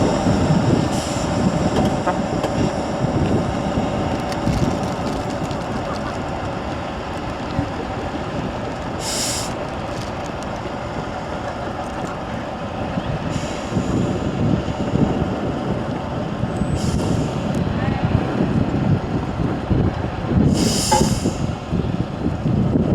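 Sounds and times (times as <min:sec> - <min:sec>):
truck diesel engine running: 0:00.0 - 0:22.9
air hissing: 0:09.0 - 0:09.7, 0:20.5 - 0:21.6.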